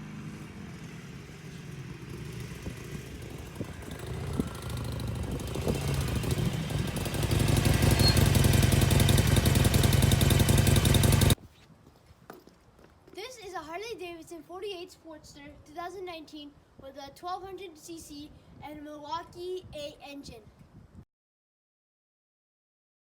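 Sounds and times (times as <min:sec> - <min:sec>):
motorcycle engine running: 0:00.0 - 0:11.4.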